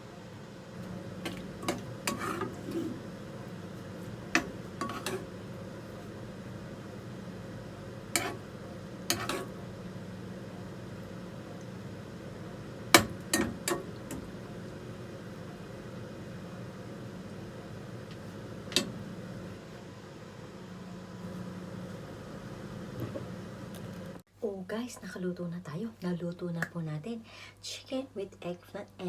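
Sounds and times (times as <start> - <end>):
steady low hum: 0.0 - 24.2
utensil clinking against cookware: 1.2 - 3.0, 4.3 - 5.3, 8.2 - 8.4, 9.1 - 9.6, 13.0 - 14.3.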